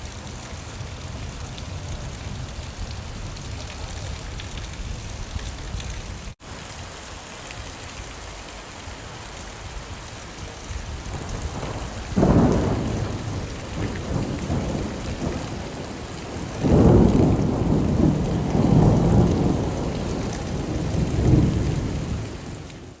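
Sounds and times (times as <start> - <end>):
rain: 0.0 - 23.0
thunder rumbling: 10.6 - 23.0.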